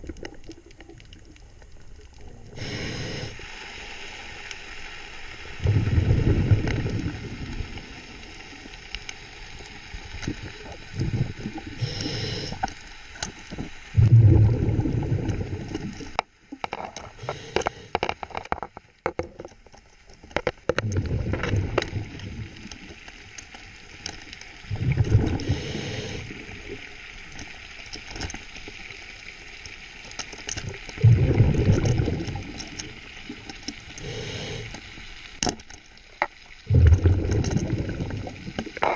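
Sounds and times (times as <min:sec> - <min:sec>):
underwater breath bubbling: 0:02.2 - 0:04.4, 0:05.5 - 0:08.4, 0:10.1 - 0:12.8, 0:13.4 - 0:18.5, 0:20.8 - 0:22.9, 0:24.6 - 0:27.0, 0:30.7 - 0:35.2, 0:36.2 - 0:38.9.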